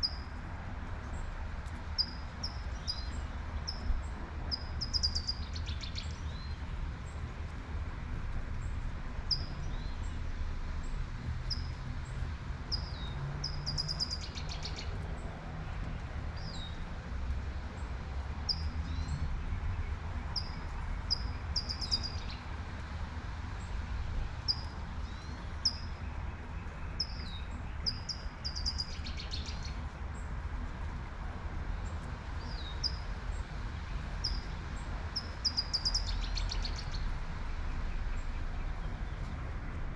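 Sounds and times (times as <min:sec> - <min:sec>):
distant traffic rumble: 0:00.0 - 0:39.9
songbird chirping: 0:04.5 - 0:06.6, 0:19.8 - 0:22.5, 0:24.5 - 0:29.8, 0:35.1 - 0:37.1.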